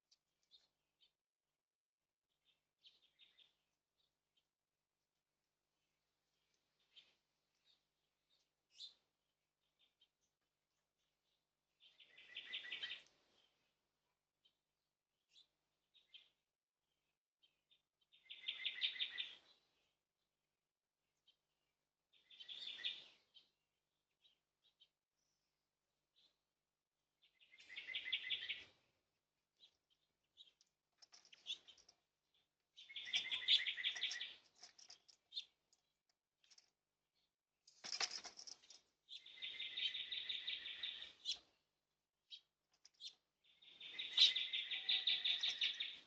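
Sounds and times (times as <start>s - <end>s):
bird chirps: 2.4s - 4.5s, 11.8s - 13.7s, 17.4s - 19.9s, 22.1s - 23.5s, 27.2s - 28.9s, 29.6s - 35.6s, 37.2s - 41.6s, 42.3s - 46.0s
bird singing rapid trill: 11.8s - 13.1s, 18.1s - 19.6s, 22.1s - 23.5s, 27.2s - 28.7s, 32.8s - 34.5s, 39.1s - 41.5s, 42.3s - 46.0s.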